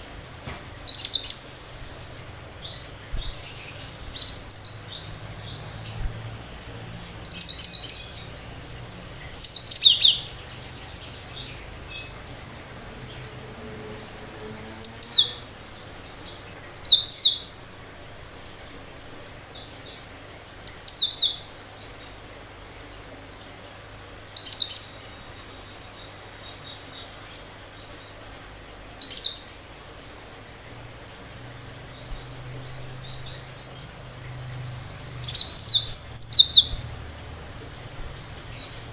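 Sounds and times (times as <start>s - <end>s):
bird singing high-pitched phrases: 0.9s - 1.6s, 2.2s - 6.1s, 7.3s - 8.4s, 9.3s - 12.2s, 13.2s - 17.8s, 20.6s - 22.0s, 24.2s - 25.7s, 28.8s - 29.6s, 34.8s - 38.9s.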